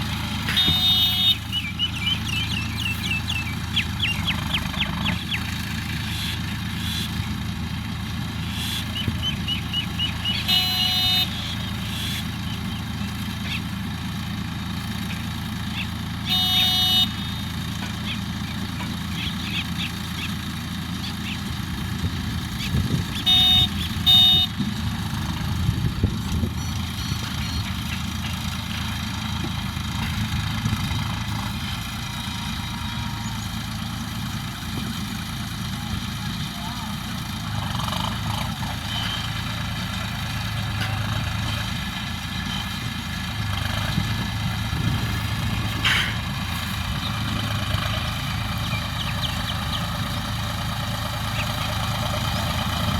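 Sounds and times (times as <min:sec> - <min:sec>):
tractor engine running: 0:00.0 - 0:52.9
short horn-like beeps: 0:00.4 - 0:01.8, 0:10.2 - 0:12.3, 0:16.3 - 0:17.5, 0:23.2 - 0:24.6, 0:38.8 - 0:39.4.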